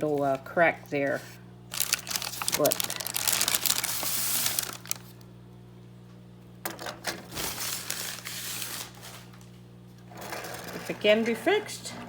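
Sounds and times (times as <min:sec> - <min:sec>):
low electrical hum: 0:00.0 - 0:12.0
packing material rustling: 0:01.7 - 0:05.2, 0:07.3 - 0:09.4.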